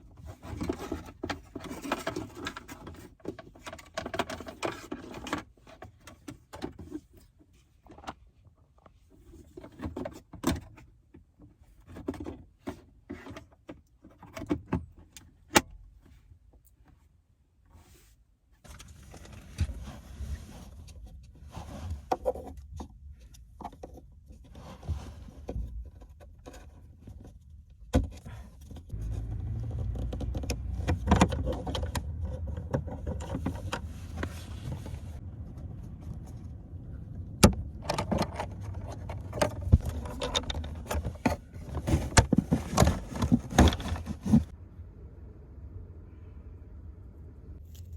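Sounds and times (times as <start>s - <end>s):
plastic parts clicking and rattling: 0.2s - 7.0s, 37.4s - 44.5s.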